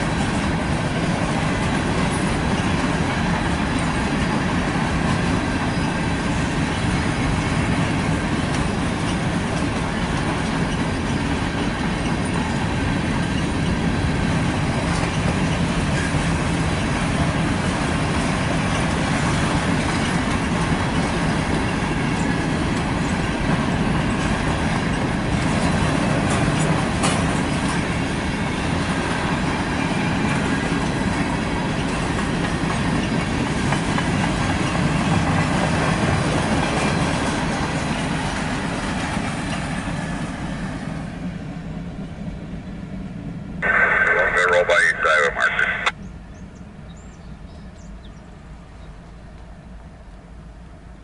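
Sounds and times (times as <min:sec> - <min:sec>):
freight train wheels rumbling: 0:00.0 - 0:51.0.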